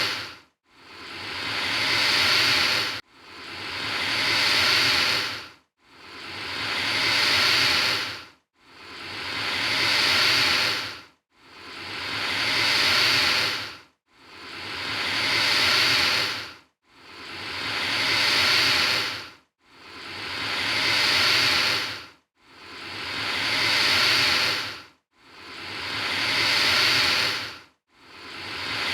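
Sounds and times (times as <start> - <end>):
alligator hissing: 0.0 - 0.3, 0.9 - 3.0, 3.6 - 5.4, 6.1 - 8.2, 8.8 - 11.0, 11.7 - 13.7, 14.4 - 16.5, 17.1 - 19.2, 19.9 - 22.0, 22.7 - 24.8, 25.4 - 27.6, 28.2 - 28.9.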